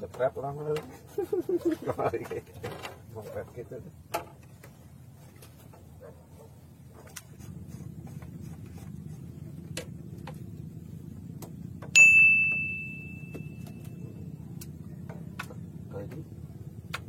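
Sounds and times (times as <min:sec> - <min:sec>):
bright metallic ding: 0:11.9 - 0:14.0.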